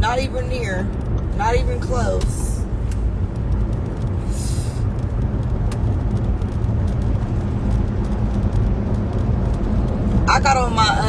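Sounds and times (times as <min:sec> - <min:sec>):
car cabin road rumble: 0:00.0 - 0:11.0
faint ticks: 0:02.2 - 0:10.3.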